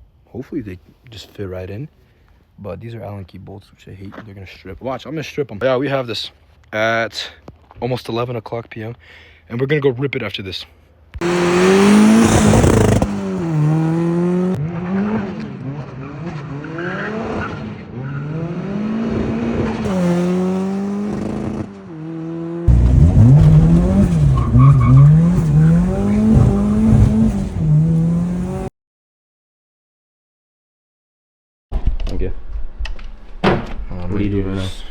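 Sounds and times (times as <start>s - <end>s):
car engine revving hard: 11.2s - 28.7s.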